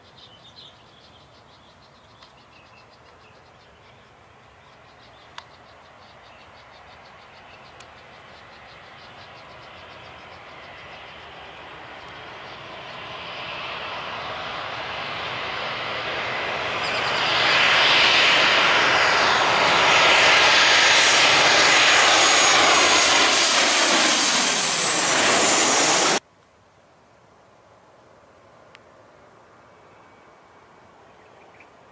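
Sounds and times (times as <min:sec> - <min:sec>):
airliner passing overhead: 0:03.4 - 0:26.2.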